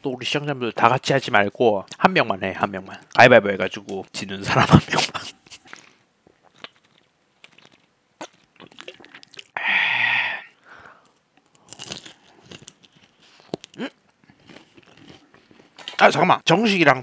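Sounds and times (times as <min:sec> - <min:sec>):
crunching fried food: 0:05.6 - 0:09.6, 0:11.4 - 0:16.2.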